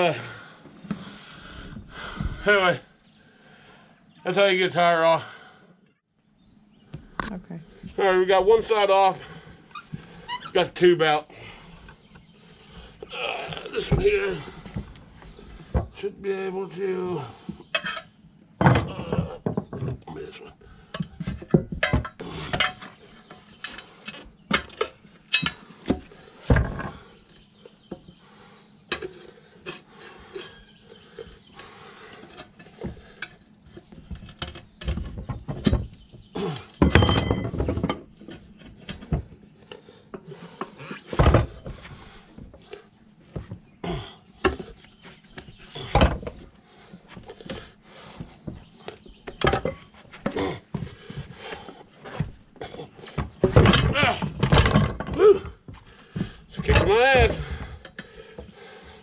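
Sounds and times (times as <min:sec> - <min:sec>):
metal bars clanking on wheel rim: 0:36.8 - 0:38.1, 0:53.4 - 0:55.5.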